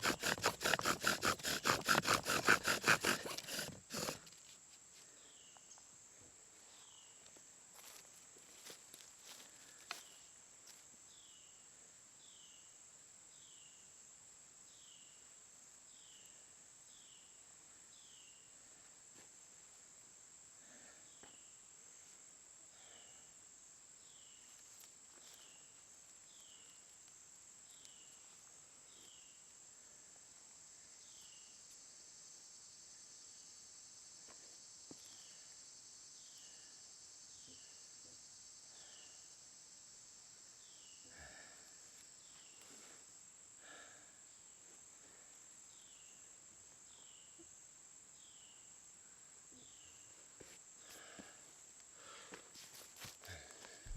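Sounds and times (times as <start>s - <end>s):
high-pitched insect chorus: 20.0s - 53.9s.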